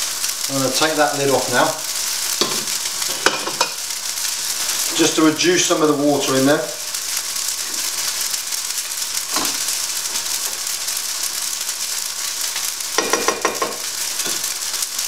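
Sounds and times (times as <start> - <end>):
food sizzling in a frying pan: 0.0 - 15.0
spatula knocking against pan: 13.0 - 13.8.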